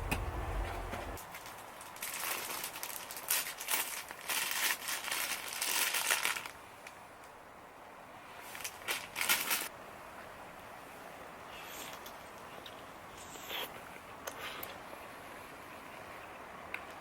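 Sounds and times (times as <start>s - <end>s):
crinkling rustle: 0.7s - 7.4s, 8.3s - 9.7s.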